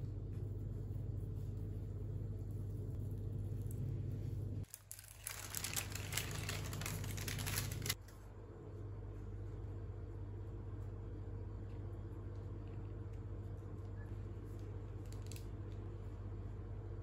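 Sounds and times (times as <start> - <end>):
steady low hum: 0.0 - 17.0
packaging crinkling: 4.6 - 8.0.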